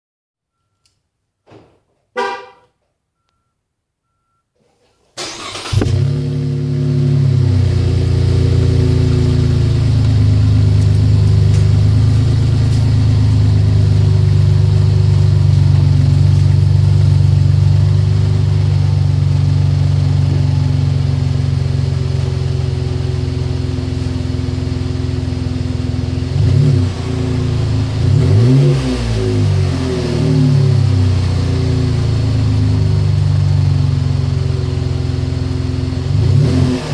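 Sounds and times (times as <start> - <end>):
short beep: 0.5 - 1.0, 2.2 - 5.1
truck engine starting and idling: 5.1 - 36.9
engine revving: 5.2 - 36.9.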